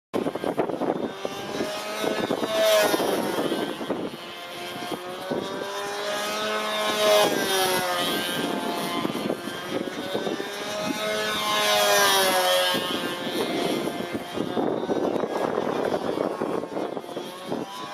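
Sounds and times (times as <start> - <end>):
model airplane engine: 0.2 - 17.9
wind buffeting microphone: 0.2 - 17.9.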